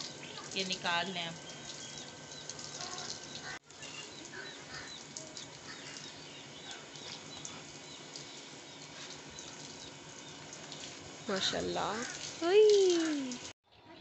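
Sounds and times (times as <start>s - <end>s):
small birds chirping: 0.0s - 13.2s.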